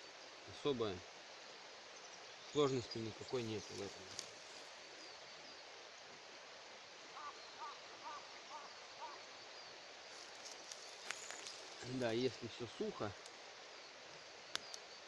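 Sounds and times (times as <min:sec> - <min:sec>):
faint outdoor background: 0:00.0 - 0:15.0
bird chirping: 0:02.0 - 0:05.7.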